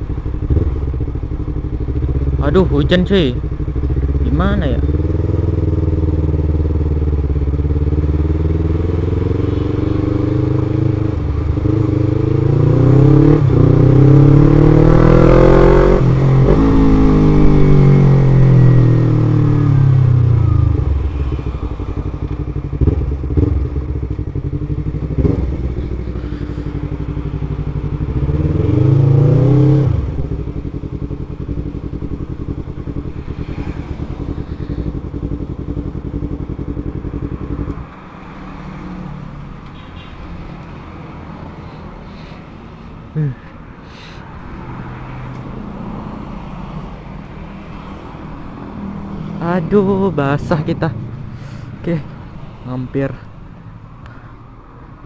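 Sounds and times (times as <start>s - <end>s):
motorcycle engine accelerating: 0.0s - 39.6s.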